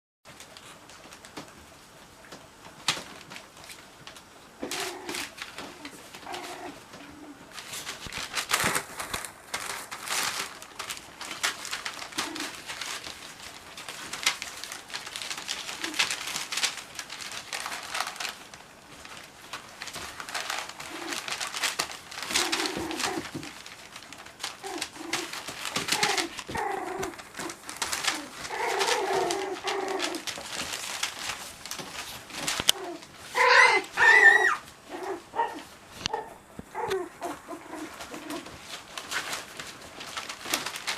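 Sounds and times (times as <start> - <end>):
puppies scuffling and clicking: 0.3 - 40.9
puppy growls: 4.6 - 7.7, 11.3 - 13.2, 15.3 - 16.5, 20.0 - 23.8, 24.4 - 31.2, 32.3 - 38.6
puppy yips: 33.4 - 34.6.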